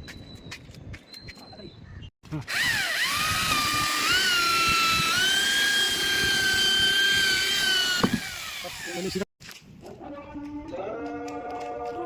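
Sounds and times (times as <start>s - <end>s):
electric drill motor whining: 2.5s - 9.3s.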